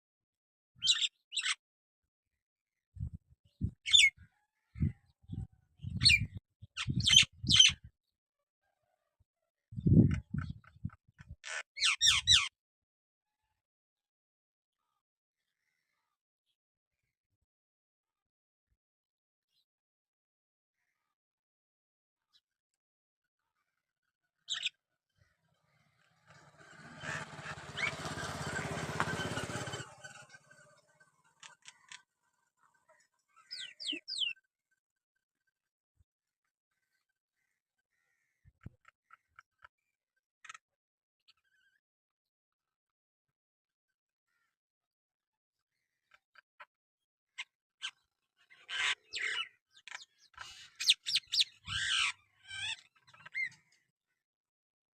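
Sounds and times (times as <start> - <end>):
myna screechy calls and whistles: 50.8 - 52.8.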